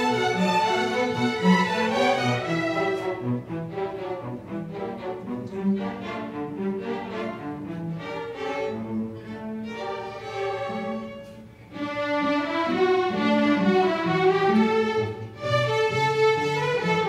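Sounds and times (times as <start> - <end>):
string orchestra holding notes: 0.0 - 17.0.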